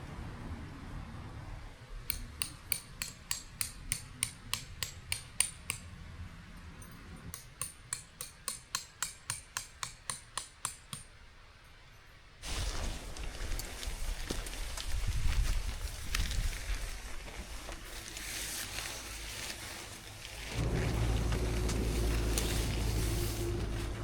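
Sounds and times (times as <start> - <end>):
light metallic tapping: 2.1 - 5.9.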